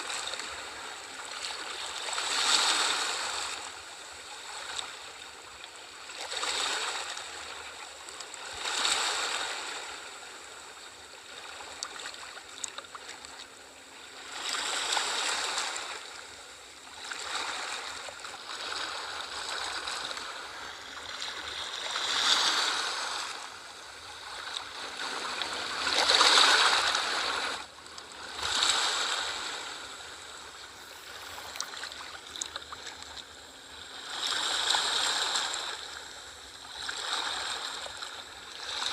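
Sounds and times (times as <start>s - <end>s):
ocean waves washing ashore: 17.0s - 36.2s.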